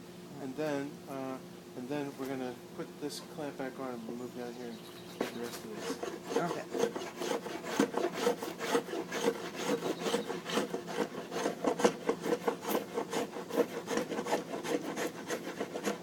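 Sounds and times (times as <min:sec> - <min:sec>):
hand tool rasping wood: 0:05.1 - 0:16.0.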